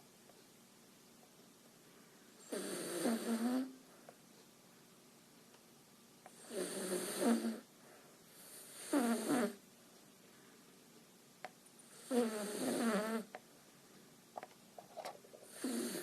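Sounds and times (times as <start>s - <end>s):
dog snoring: 2.4s - 3.8s, 6.3s - 7.7s, 8.4s - 9.6s, 11.9s - 13.3s, 15.5s - 16.0s.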